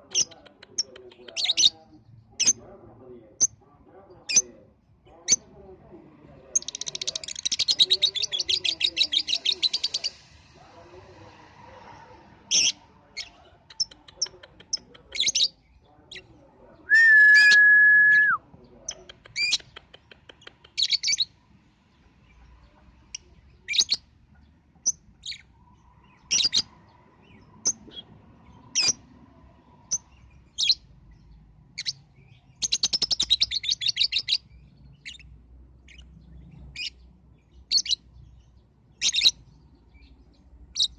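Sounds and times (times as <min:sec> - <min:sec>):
loud steady whistle-like tone: 0:16.9 - 0:18.4.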